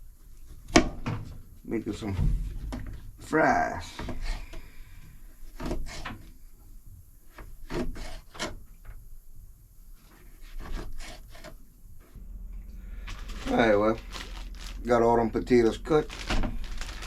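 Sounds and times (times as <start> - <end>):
knife cutting potatoes on board: 5.5 - 6.2, 7.3 - 8.6, 10.4 - 11.6.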